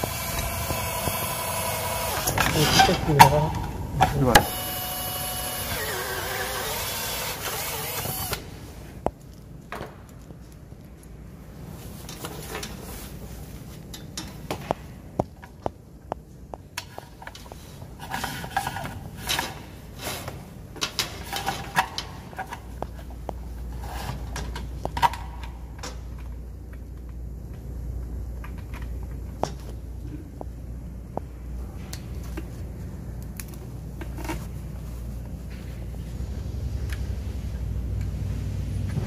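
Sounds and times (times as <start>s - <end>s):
low steady rumble: 0.0s - 5.6s, 22.3s - 39.0s.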